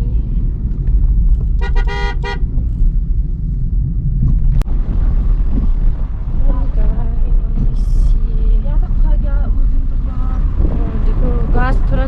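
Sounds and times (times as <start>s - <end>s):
car driving rumble: 0.0s - 12.0s
car horn toots: 1.6s - 2.5s.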